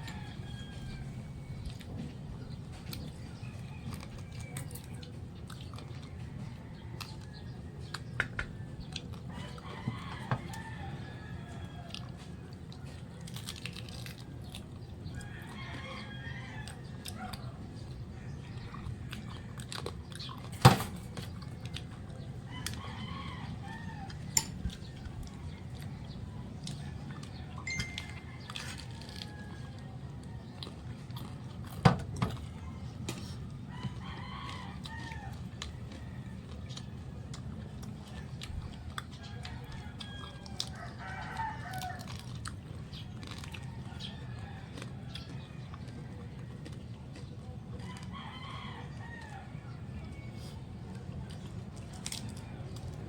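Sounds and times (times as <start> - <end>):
rooster crowing: 0.0 - 1.6, 9.3 - 12.2, 39.4 - 42.2
chickens calling: 0.0 - 53.0
chickens eating clicks and crunching: 0.0 - 53.0.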